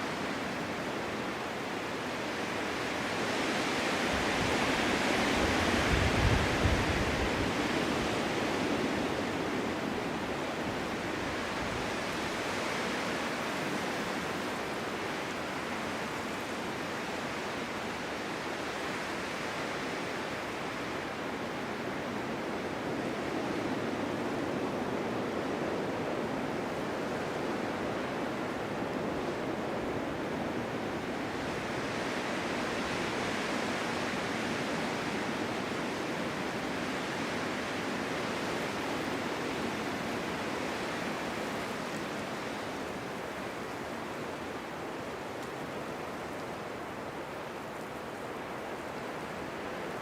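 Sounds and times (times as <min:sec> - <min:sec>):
wind blowing through snowstorm: 0:00.0 - 0:50.0.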